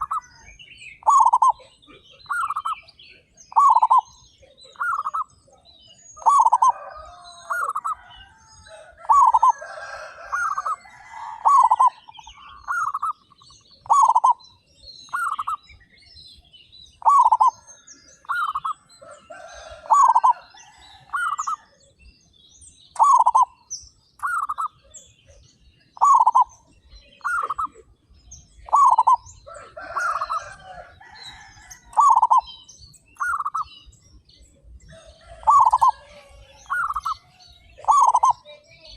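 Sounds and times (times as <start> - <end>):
doves cooing: 0.0 - 0.3, 1.0 - 5.3, 6.2 - 15.6, 17.0 - 21.8, 23.0 - 23.6, 25.9 - 32.6, 34.8 - 38.4
small birds high chirps: 0.0 - 38.9.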